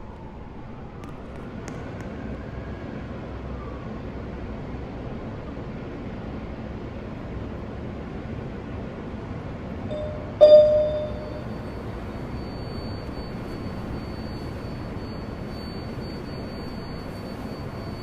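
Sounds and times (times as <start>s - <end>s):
subway train rumble: 0.0s - 18.0s
electronic chime: 9.9s - 13.1s
faint high whine: 9.9s - 18.0s.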